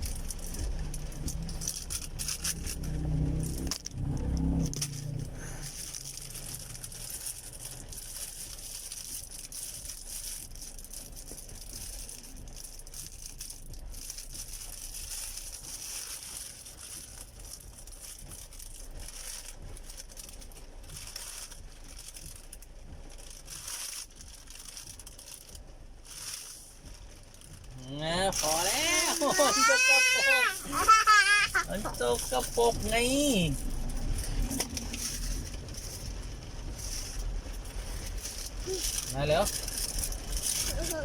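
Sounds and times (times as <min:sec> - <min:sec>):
rain on car: 0:00.0 - 0:41.0
road noise inside car: 0:00.0 - 0:41.0.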